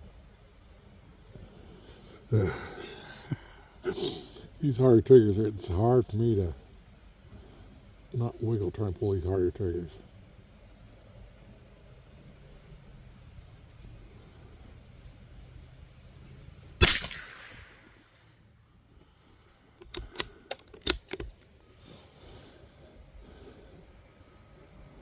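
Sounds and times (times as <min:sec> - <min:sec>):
crickets buzzing: 0:00.0 - 0:25.0
rifle bolt metallic clicks: 0:16.8 - 0:18.0, 0:19.8 - 0:21.5
rifle shot with echo: 0:16.8 - 0:18.3.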